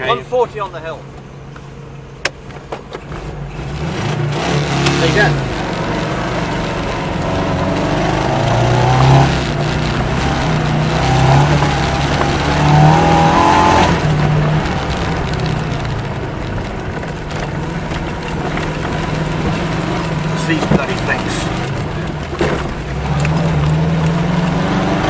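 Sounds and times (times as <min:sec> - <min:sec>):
car engine pulling hard uphill: 0:00.0 - 0:25.0.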